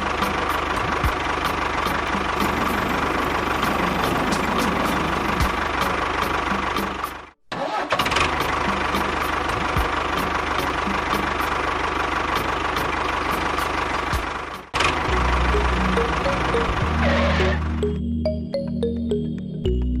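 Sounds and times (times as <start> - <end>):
small motor running: 2.4 - 5.8.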